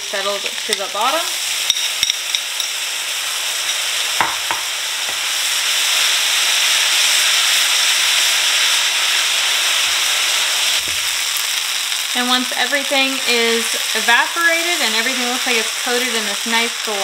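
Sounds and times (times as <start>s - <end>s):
stir-fry sizzling in a skillet: 0.0s - 17.0s
wooden spoon knocks: 4.2s - 4.7s.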